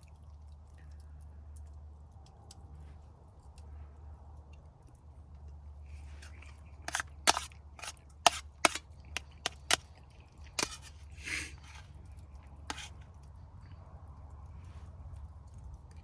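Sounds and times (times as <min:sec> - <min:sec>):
scraping rustle: 0:05.9 - 0:09.9, 0:10.5 - 0:12.0, 0:12.7 - 0:13.2.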